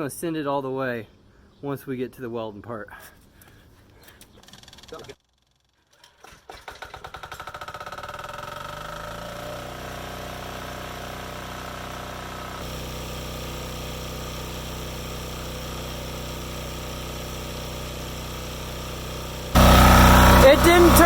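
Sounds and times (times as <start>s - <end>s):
diesel generator engine running: 7.3s - 21.0s.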